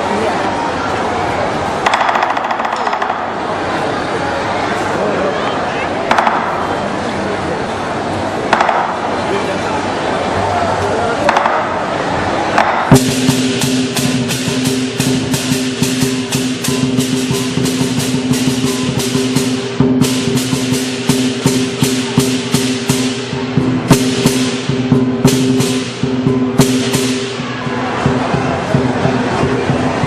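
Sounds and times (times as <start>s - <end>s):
drum beating: 8.5s - 9.2s, 12.5s - 30.0s
cymbal crashes: 12.9s - 28.1s.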